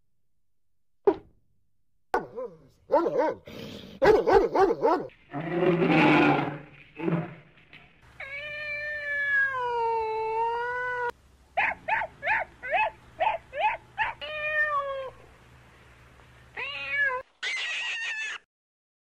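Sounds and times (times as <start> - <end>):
cat meowing: 8.2 - 11.1, 14.2 - 15.1, 16.6 - 18.4.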